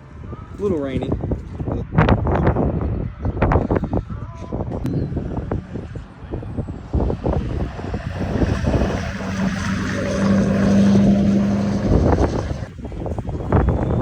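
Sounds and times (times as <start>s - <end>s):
wind on microphone: 0.0s - 14.0s
car engine running: 5.5s - 12.8s.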